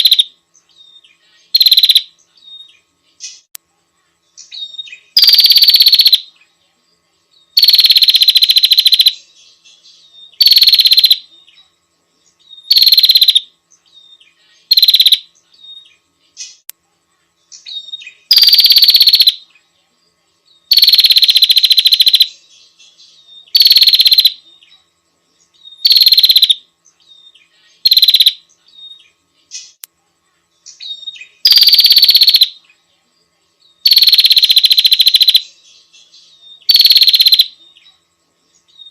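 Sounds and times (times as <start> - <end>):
bird chattering trill: 0.0 - 0.3, 1.4 - 2.1, 4.4 - 6.3, 7.6 - 9.3, 10.3 - 11.3, 12.6 - 13.5, 14.6 - 15.3, 17.6 - 19.4, 20.7 - 22.4, 23.4 - 24.4, 25.7 - 26.6, 27.7 - 29.0, 30.7 - 32.6, 33.8 - 35.6, 36.6 - 37.6.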